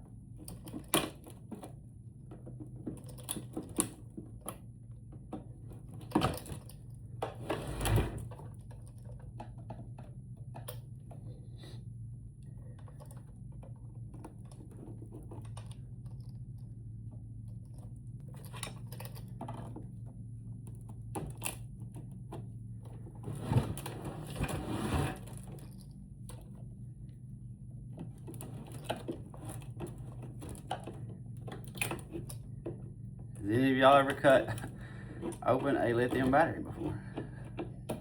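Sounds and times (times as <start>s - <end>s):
steady low hum: 0.0s - 38.0s
tools scraping plastic case: 23.2s - 25.7s.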